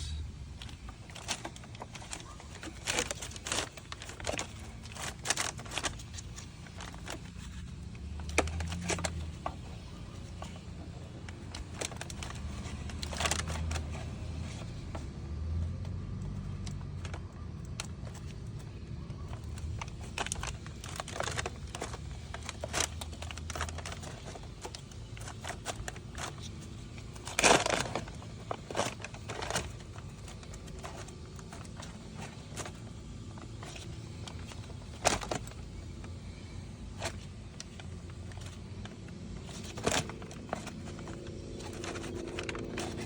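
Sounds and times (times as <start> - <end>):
low hum: 0.0 - 1.1
plastic parts clattering: 0.5 - 15.1, 16.6 - 43.0
plastic parts clicking and rustling: 0.5 - 43.0.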